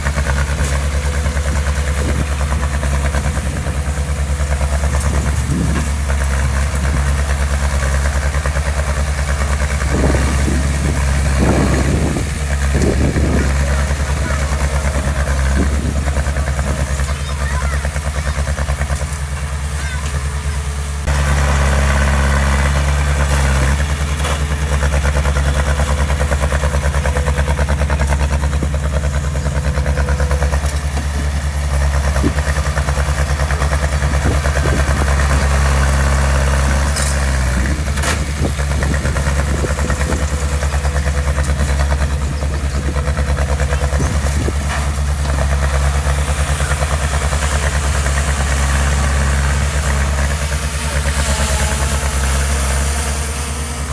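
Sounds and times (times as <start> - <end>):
heavy diesel engine running: 0.0 - 53.9.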